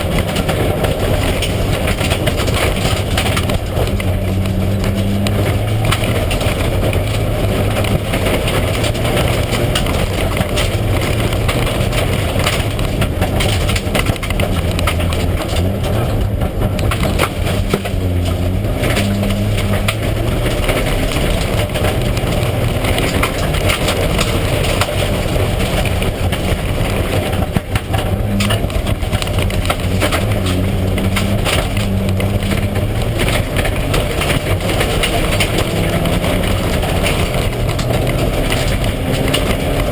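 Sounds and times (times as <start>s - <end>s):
rally car engine running hard: 0.0s - 39.9s
stones clattering against car underside: 0.0s - 39.9s.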